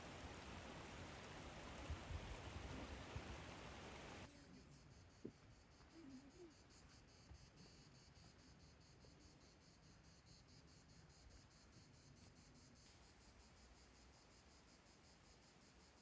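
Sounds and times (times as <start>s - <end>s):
faint insect chirping: 0.0s - 16.0s.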